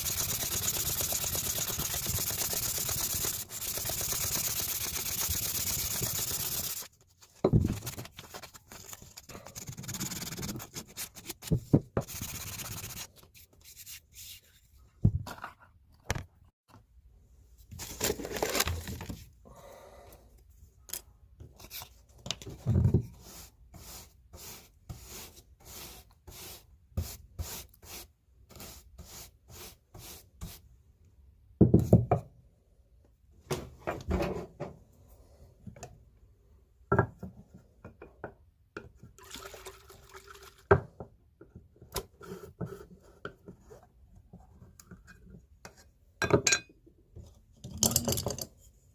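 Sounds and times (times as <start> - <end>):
rubbing and scraping: 0.0 - 15.7.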